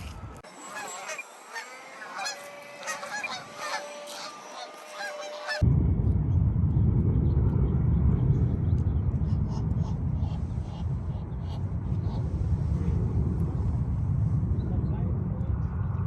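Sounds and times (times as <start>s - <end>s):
geese honking: 0.0s - 5.6s
loud low rumbling: 5.2s - 16.0s.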